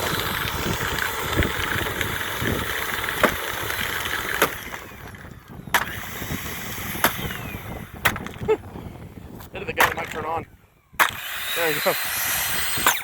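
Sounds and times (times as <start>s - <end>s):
vacuum cleaner motor running: 0.0s - 7.9s, 11.1s - 13.0s.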